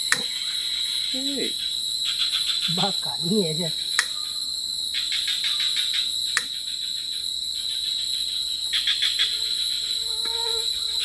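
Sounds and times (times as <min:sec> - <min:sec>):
sharp click: 0:00.0 - 0:00.3, 0:04.0 - 0:04.2, 0:06.4 - 0:06.6
insects trilling: 0:00.0 - 0:11.0.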